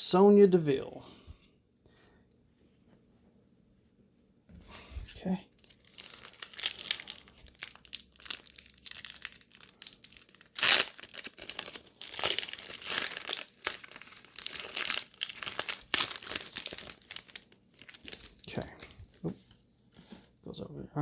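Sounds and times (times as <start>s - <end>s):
card pack wrapper crinkling: 5.5s - 19.6s.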